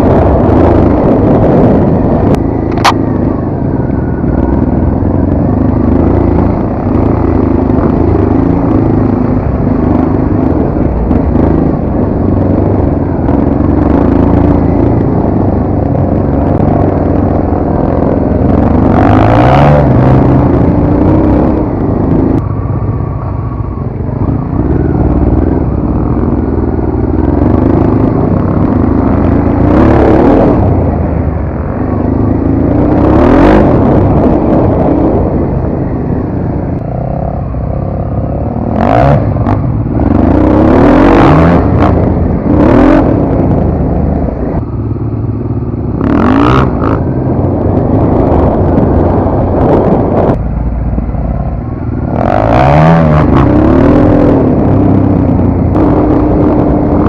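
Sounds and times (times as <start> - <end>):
off-road motorcycle engine revving: 0.0 - 57.0.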